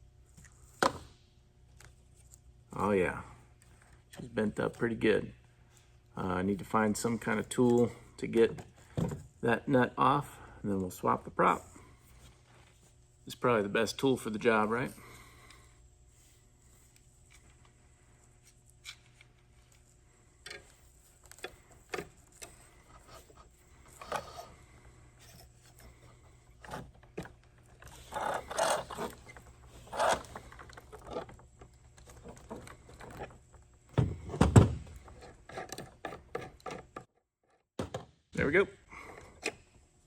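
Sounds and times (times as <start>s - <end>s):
hand tool clicks and scrapes: 25.2s - 31.3s.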